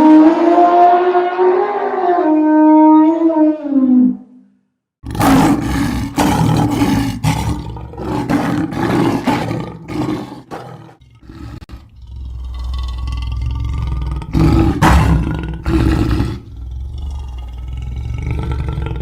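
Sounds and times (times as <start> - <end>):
large animal roaring: 5.0 - 19.0.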